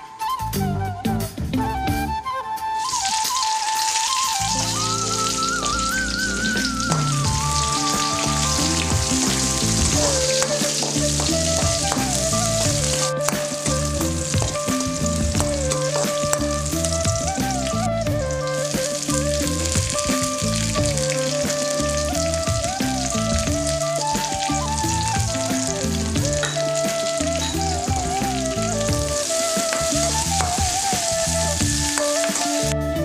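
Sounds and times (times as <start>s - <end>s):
background music: 0.0s - 33.0s
onions sizzling in oil: 2.8s - 32.7s.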